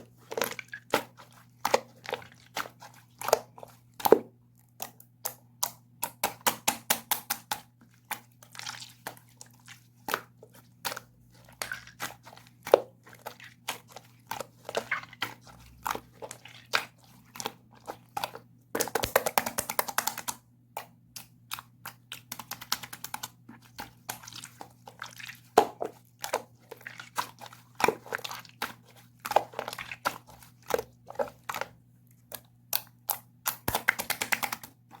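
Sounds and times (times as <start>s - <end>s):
slime squished by hand: 6.2s - 20.3s.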